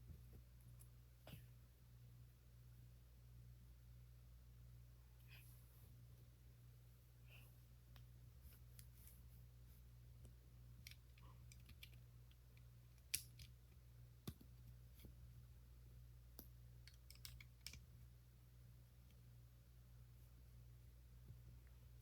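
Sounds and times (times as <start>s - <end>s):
plastic pieces clicking: 10.8s - 12.0s.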